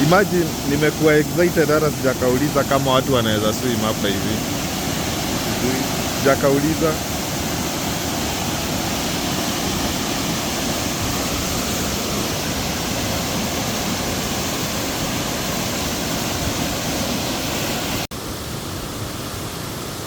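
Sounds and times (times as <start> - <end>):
waterfall rushing into pool: 0.0 - 20.0.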